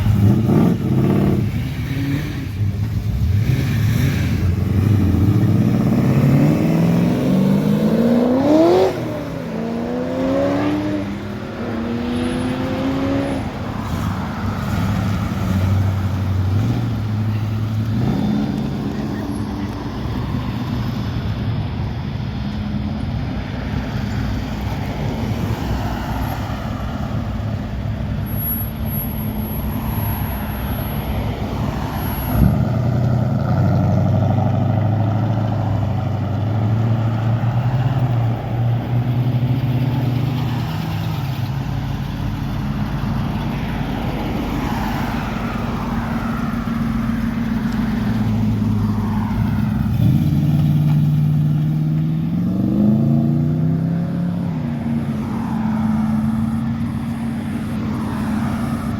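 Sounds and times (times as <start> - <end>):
car engines running: 0.0 - 58.9
engine revving: 3.3 - 13.5.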